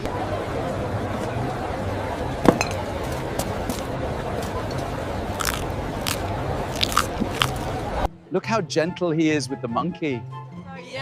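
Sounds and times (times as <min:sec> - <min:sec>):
crunching bites: 0:05.3 - 0:07.8.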